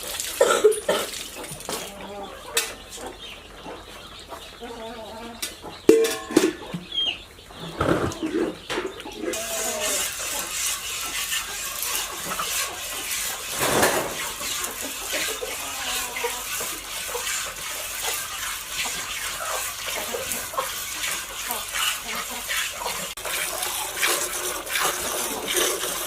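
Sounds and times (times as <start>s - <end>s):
water running and splashing: 0.0s - 2.0s, 9.3s - 26.0s
hens clucking: 0.4s - 26.0s.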